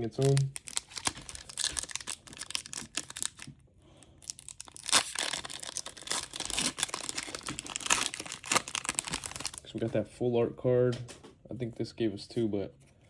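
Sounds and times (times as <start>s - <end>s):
foil wrapper tearing and crinkling: 0.0s - 3.5s, 4.1s - 9.7s.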